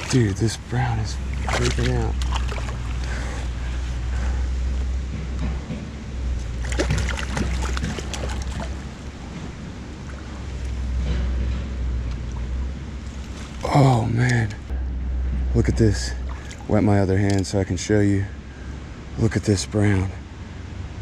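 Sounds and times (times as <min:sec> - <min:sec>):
fish thrashing and splashing: 0:00.0 - 0:00.5, 0:01.2 - 0:03.8, 0:06.5 - 0:11.0, 0:12.2 - 0:13.8
creek water running: 0:00.0 - 0:05.2, 0:06.2 - 0:14.7, 0:15.6 - 0:20.2.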